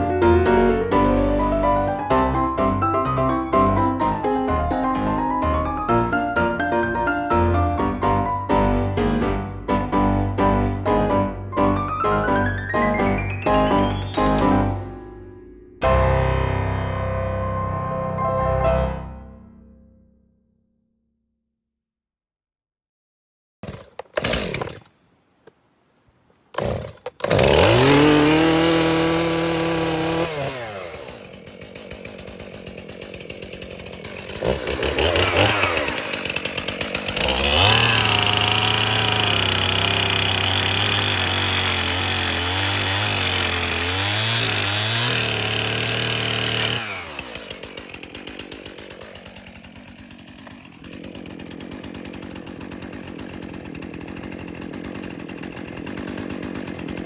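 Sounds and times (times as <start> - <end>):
gas engine saw cutting wood: 23.6 - 57.0.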